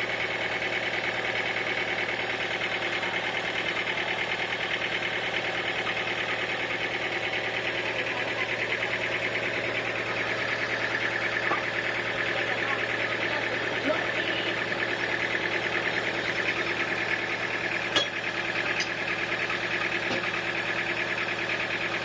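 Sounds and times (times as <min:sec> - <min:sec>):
sawmill machinery running: 0:00.0 - 0:22.0.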